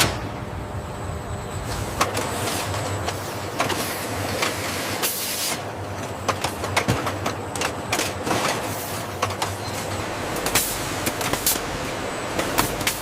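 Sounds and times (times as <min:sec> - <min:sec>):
machinery humming: 0:00.0 - 0:13.0
machine clicks and clattering: 0:05.8 - 0:13.0.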